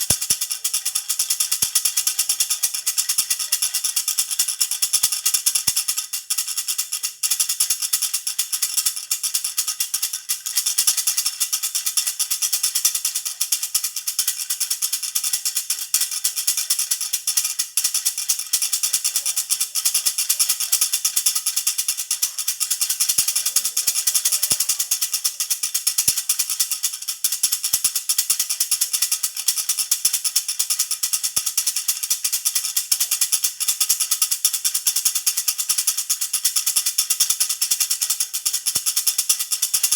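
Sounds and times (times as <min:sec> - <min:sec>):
baby rattle jingling: 0:00.0 - 0:05.9, 0:07.8 - 0:27.3.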